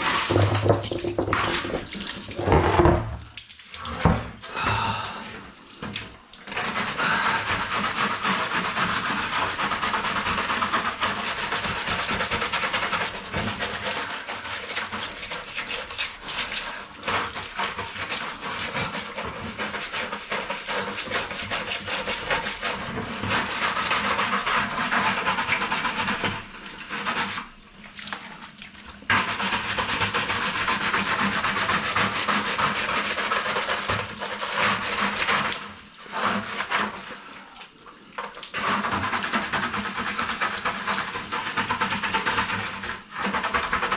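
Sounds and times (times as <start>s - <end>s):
brush scrubbing plastic: 0.0s - 5.0s, 5.8s - 43.9s.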